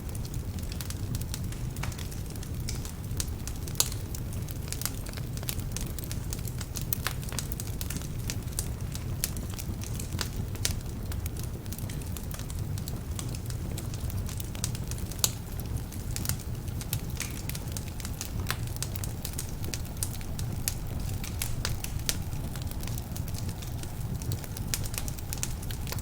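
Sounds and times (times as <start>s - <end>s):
logs crackling and popping: 0.0s - 26.0s
low rumble of flames: 0.0s - 26.0s.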